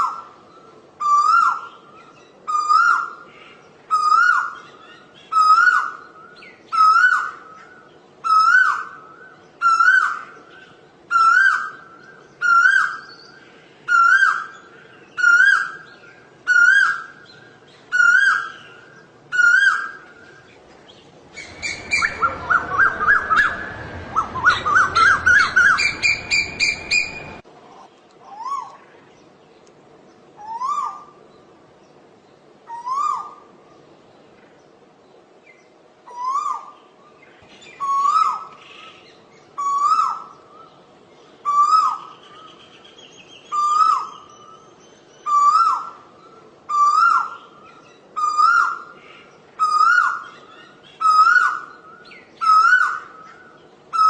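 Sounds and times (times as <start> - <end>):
bird rising whistled calls: 21.3 - 27.4, 36.1 - 40.7, 41.4 - 54.0.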